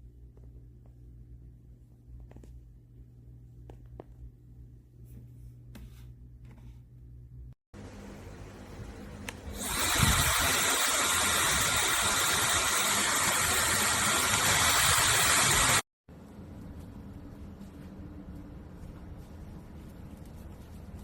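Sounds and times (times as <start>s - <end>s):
hair dryer blowing air: 9.5s - 15.9s.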